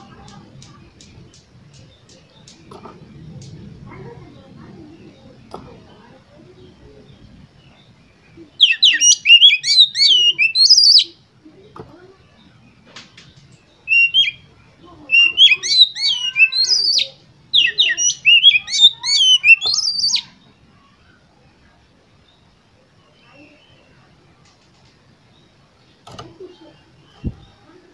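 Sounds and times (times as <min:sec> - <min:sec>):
bird singing whistled phrases: 0:08.6 - 0:11.2, 0:13.9 - 0:14.5, 0:15.1 - 0:20.3.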